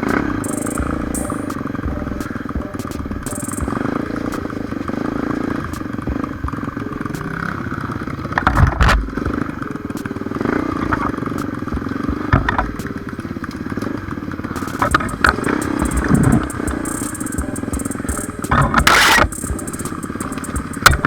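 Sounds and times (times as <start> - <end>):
motorcycle knocks and rattles: 11.4 - 12.8.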